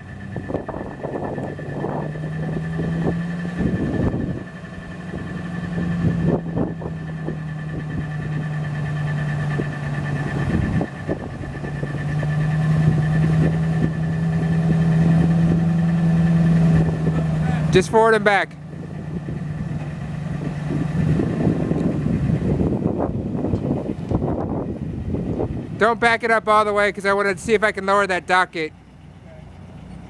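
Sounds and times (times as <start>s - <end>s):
truck engine idling: 0.0s - 30.0s
clunks and knocks: 19.6s - 20.2s.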